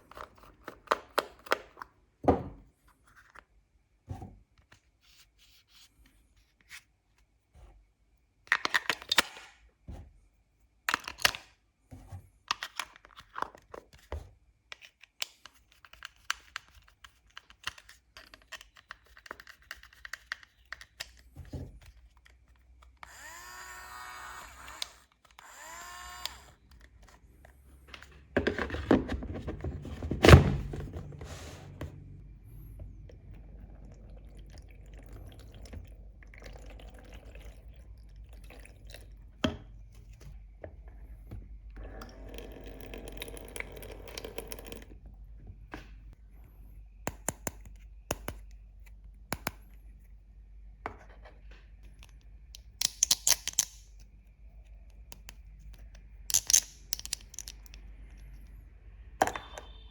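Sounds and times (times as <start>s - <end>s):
plastic toy parts clicking: 52.0s - 54.1s, 56.3s - 57.9s.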